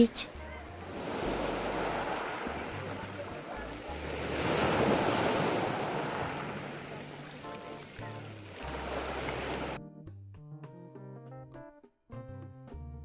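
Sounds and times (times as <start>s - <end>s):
sea surf washing onto shore: 1.0s - 9.8s.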